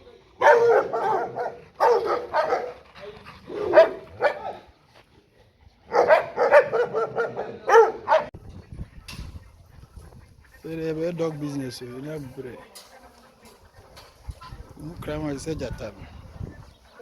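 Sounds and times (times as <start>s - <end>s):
dog barking: 0.4s - 2.8s, 3.5s - 4.7s, 5.9s - 8.3s.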